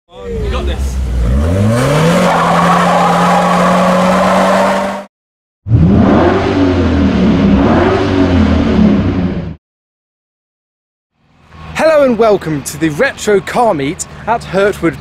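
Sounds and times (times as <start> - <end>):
car engine revving: 0.2 - 5.1, 5.7 - 9.6.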